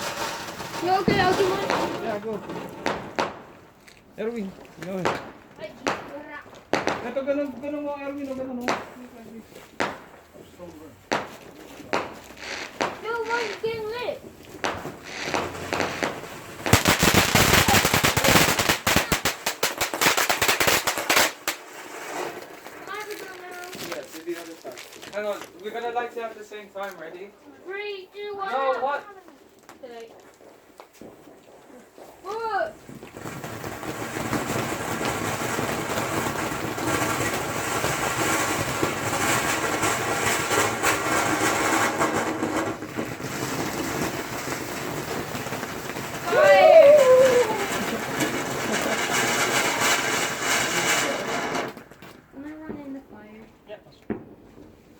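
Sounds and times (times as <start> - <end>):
firework crackling: 0.0 - 54.9.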